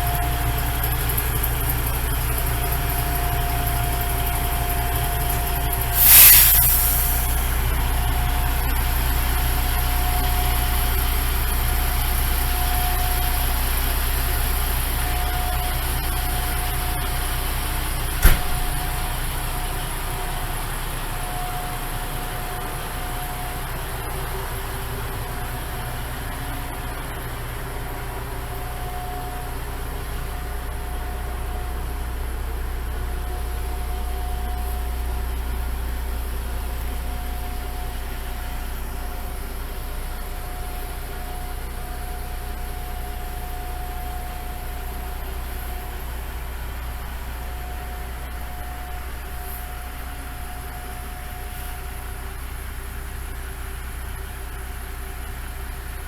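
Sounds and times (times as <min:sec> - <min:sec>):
diesel engine idling: 0:00.0 - 0:56.0
faint high whine: 0:04.7 - 0:08.5, 0:28.0 - 0:55.3.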